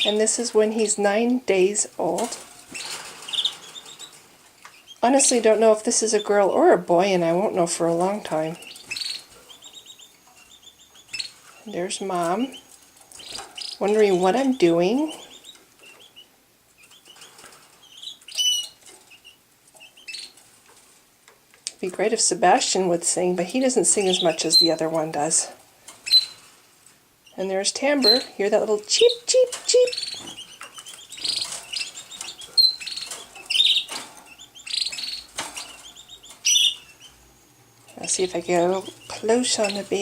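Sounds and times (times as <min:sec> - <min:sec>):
canaries chirping: 0:00.0 - 0:40.0.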